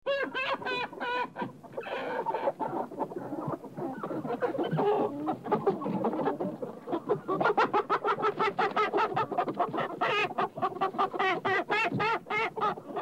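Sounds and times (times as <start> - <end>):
chickens clucking: 0.1 - 13.0.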